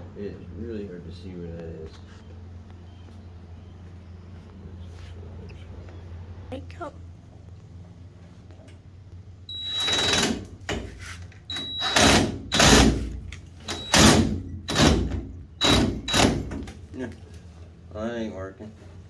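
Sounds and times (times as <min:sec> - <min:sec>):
power drill whining: 0:09.5 - 0:16.7.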